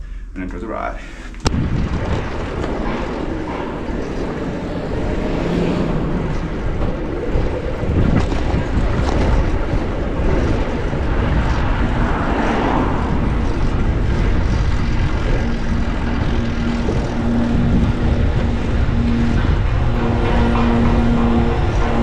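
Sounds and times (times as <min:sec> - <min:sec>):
low hum: 0:00.0 - 0:22.0
bicycle road noise: 0:01.1 - 0:22.0
wind rushing over microphone: 0:01.4 - 0:22.0.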